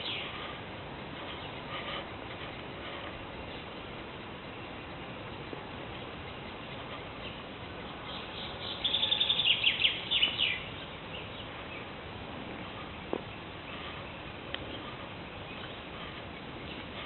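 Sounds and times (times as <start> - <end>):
background hiss: 0.0 - 17.0
songbird singing high notes: 8.0 - 11.8.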